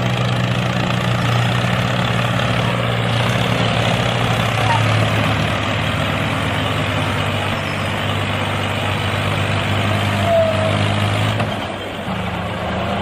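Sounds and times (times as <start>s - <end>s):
brief squeak: 4.6s - 5.0s, 10.2s - 10.8s.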